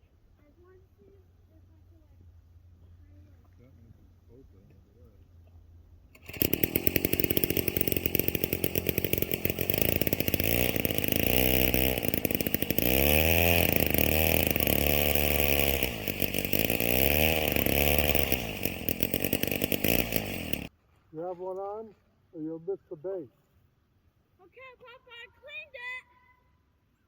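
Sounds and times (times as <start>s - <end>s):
ice auger engine drilling: 6.1s - 20.7s.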